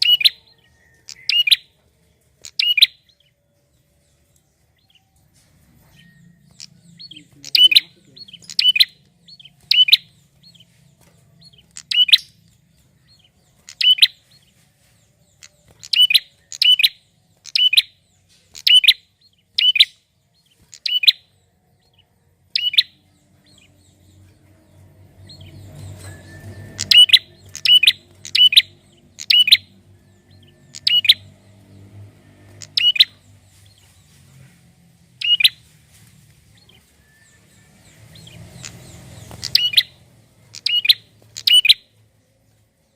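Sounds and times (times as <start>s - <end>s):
bird chirping: 0.0s - 42.9s.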